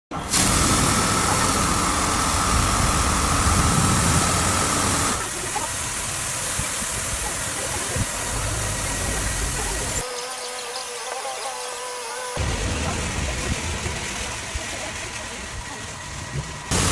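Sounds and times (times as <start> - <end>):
car wash machine hum and hiss: 0.1 - 10.1, 12.4 - 16.9
thin mechanical whine: 0.2 - 5.7.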